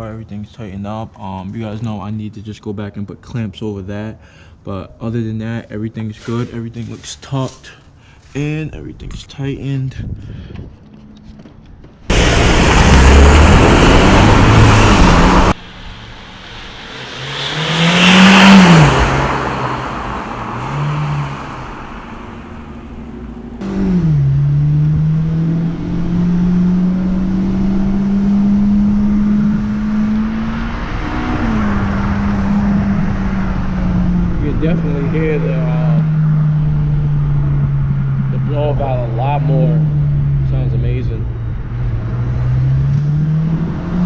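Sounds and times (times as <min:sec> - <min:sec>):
intake whoosh: 0:12.1 - 0:23.6
loud rushing noise: 0:12.1 - 0:23.6
car engine revving: 0:12.1 - 0:44.0.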